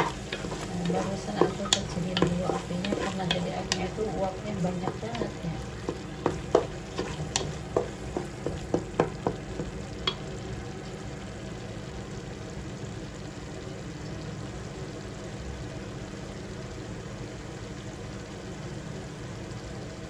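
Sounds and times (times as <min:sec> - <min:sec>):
spatula scraping a pan: 0:00.0 - 0:09.4
paste sizzling in a pan: 0:00.0 - 0:10.4.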